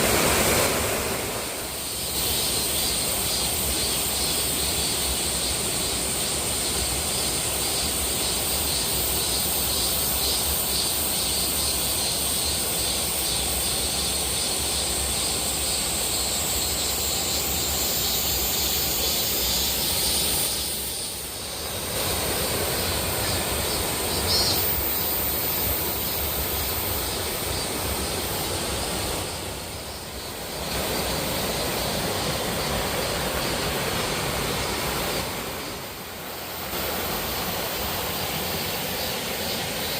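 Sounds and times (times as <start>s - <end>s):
waterfall rushing: 0.0s - 7.8s, 20.1s - 39.9s.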